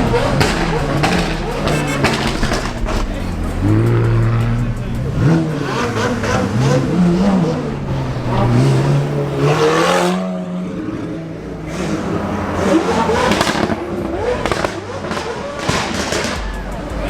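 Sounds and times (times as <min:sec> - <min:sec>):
exhaust crackling pops: 0:00.0 - 0:05.0, 0:13.2 - 0:16.6
car engine revving: 0:00.0 - 0:17.0.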